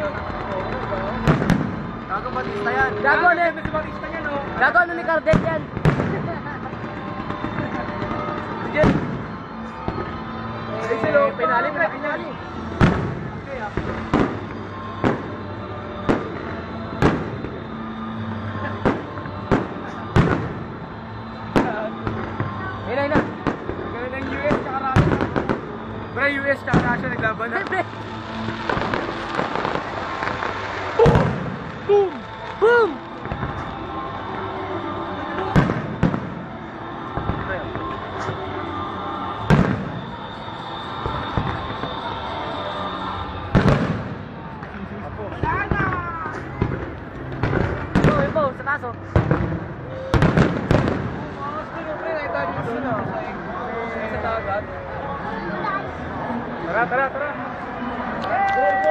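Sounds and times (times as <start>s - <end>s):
fireworks bangs: 0.0s - 53.4s
faint firework pops: 33.2s - 33.8s.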